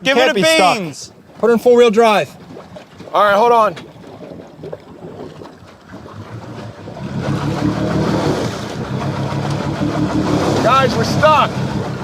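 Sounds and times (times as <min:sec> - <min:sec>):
pickup truck engine revving: 0:06.2 - 0:12.0.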